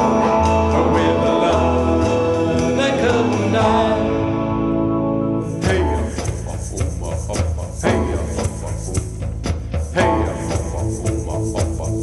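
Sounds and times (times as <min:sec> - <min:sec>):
drums and bass beat: 0:00.0 - 0:04.3, 0:05.5 - 0:12.0
rock band held chord: 0:00.0 - 0:06.1.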